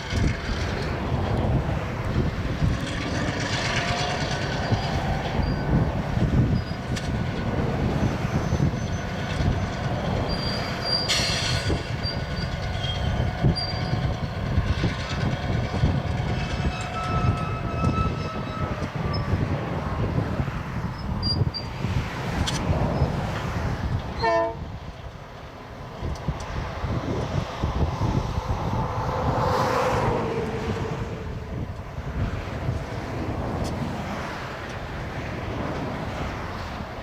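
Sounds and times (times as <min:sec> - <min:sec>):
train cars rumbling: 0:00.0 - 0:37.0
steel wheels squealing: 0:02.2 - 0:24.7.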